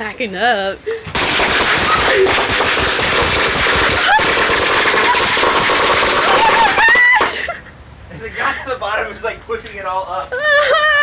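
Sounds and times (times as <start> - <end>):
firecrackers crackling: 1.1 - 7.6.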